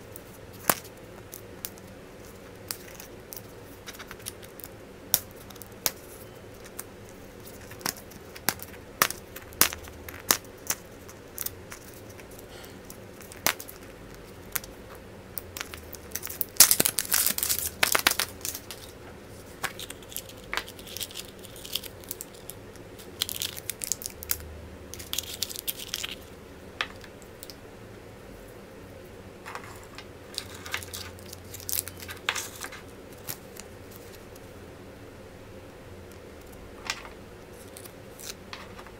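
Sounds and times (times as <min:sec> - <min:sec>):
wrappers tearing and crinkling: 0:15.6 - 0:24.4, 0:30.3 - 0:34.2.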